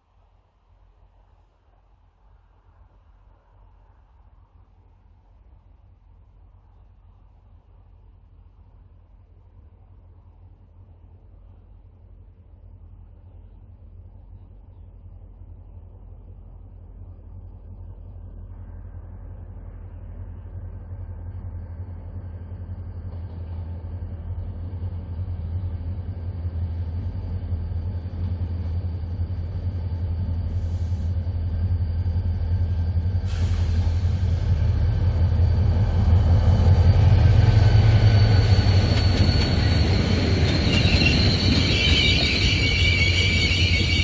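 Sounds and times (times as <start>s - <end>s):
rail noise: 0.0s - 44.0s
train engine and wheel rumble: 0.0s - 44.0s
brake and wheel squeal: 36.8s - 44.0s.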